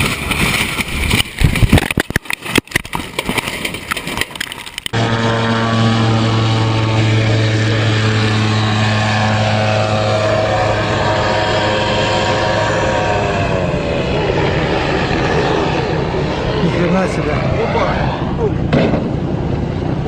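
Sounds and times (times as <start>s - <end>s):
loud knocks and crackles: 0.0s - 5.0s, 18.7s - 19.2s
propeller aircraft engine drone: 0.0s - 20.0s.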